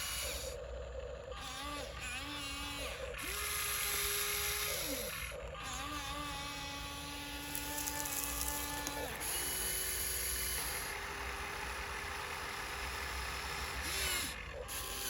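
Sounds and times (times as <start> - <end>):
small electric motor whining: 0.0 - 15.0
gear noise: 7.3 - 11.7.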